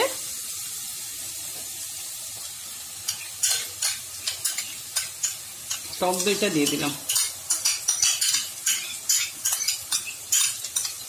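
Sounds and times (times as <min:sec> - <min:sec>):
paste sizzling in hot oil: 0:00.0 - 0:11.0
utensil stirring and scraping: 0:03.1 - 0:11.0.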